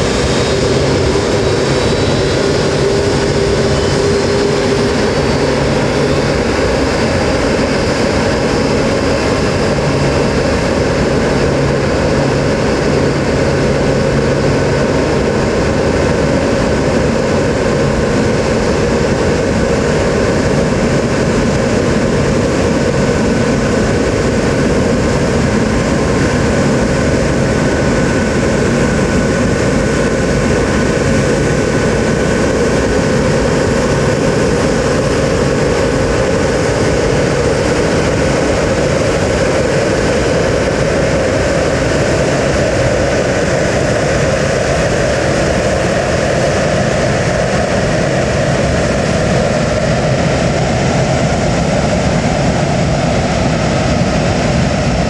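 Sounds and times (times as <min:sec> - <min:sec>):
jet engines running: 0:00.0 - 0:55.0.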